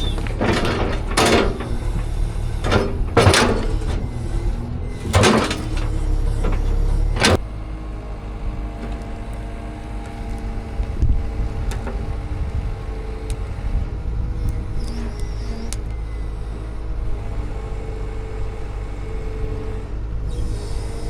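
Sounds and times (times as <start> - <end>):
loud knocks: 0.0 - 4.2, 4.9 - 7.4
engine running hum: 0.0 - 21.0.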